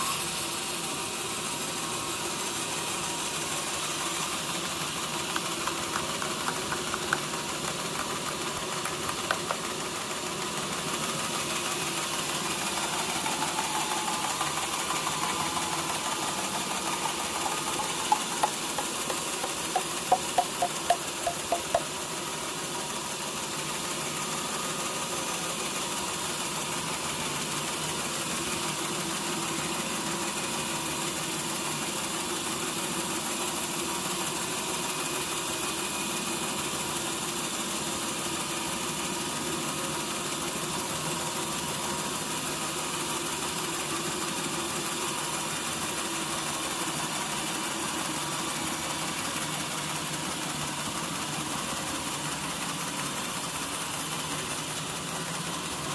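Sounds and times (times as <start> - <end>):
sawmill machinery droning: 0.0 - 25.6.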